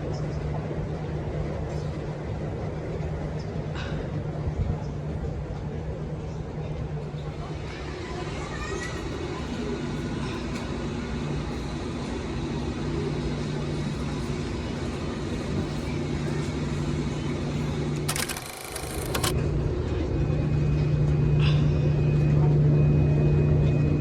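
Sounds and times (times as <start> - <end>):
moving transit vehicle rumble: 0.0 - 18.4.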